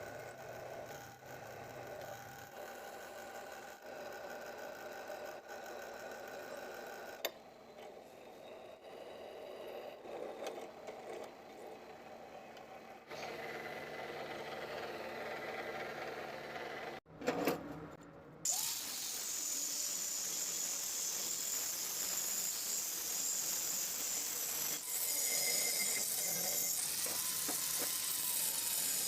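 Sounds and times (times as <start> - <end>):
electric motor humming: 18.5 - 29.0.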